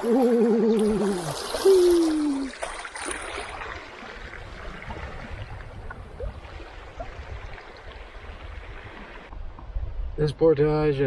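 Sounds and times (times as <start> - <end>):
man humming: 0.0 - 2.6.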